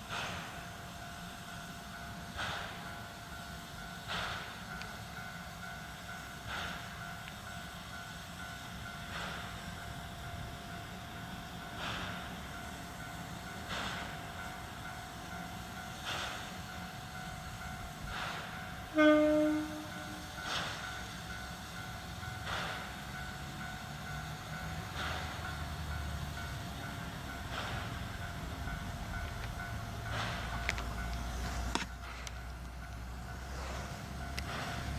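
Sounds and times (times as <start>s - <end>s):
steam locomotive puffs: 0.0s - 34.9s
steam whistle blast: 18.9s - 20.3s.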